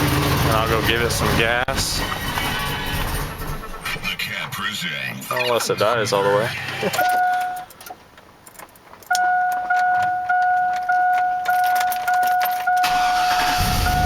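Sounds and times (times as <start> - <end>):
engine cranking and running rough: 0.0 - 4.4, 12.8 - 14.0
car warning chime: 7.0 - 7.7, 9.1 - 14.0
keys jangling in ignition: 7.0 - 13.6.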